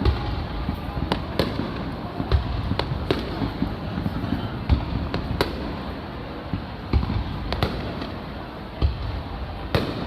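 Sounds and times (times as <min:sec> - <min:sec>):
faint firework pops: 0:00.0 - 0:10.0
firework shells booming: 0:00.0 - 0:10.0
steady background noise: 0:00.0 - 0:10.0.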